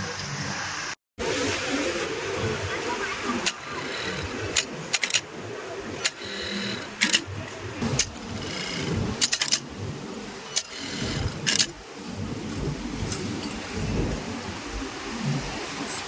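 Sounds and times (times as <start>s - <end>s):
sewing machines running: 2.5s - 12.0s
sharp clicks and clatters: 3.3s - 5.3s, 6.0s - 11.8s.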